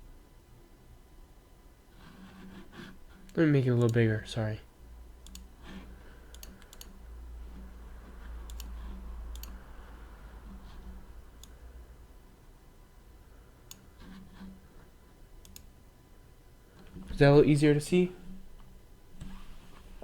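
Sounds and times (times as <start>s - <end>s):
low steady hum: 0.0s - 20.0s
computer clicks: 5.2s - 5.5s, 6.3s - 7.0s, 8.5s - 9.6s, 15.4s - 15.7s.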